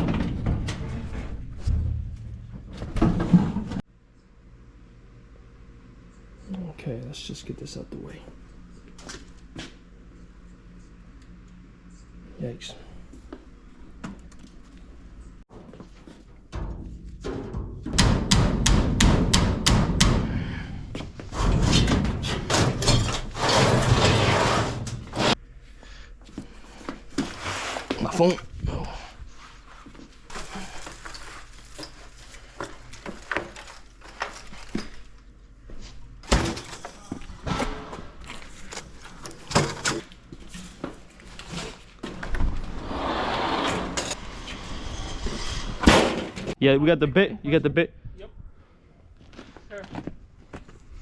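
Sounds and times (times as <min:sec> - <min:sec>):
metal scraping and rattling: 0:00.0 - 0:03.8, 0:16.1 - 0:19.3, 0:21.2 - 0:25.4, 0:36.3 - 0:46.6
sharp metal bangs: 0:16.6 - 0:20.4
object scraping and sliding: 0:42.6 - 0:45.9.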